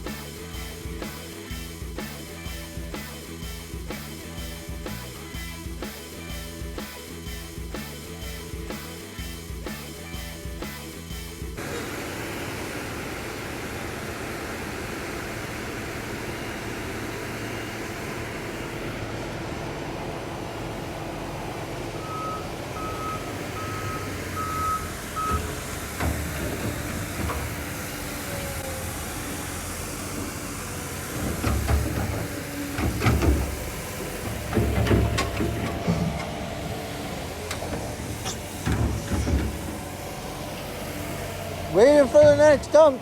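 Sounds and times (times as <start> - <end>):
heavy construction equipment running: 0.0 - 43.0
reversing alarm beeping: 22.0 - 25.6.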